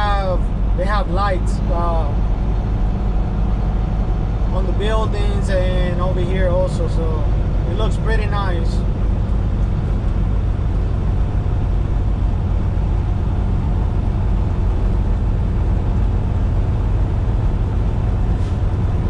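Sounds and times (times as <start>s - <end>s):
diesel engine drone: 0.0s - 19.0s
road and tyre noise: 0.0s - 19.0s.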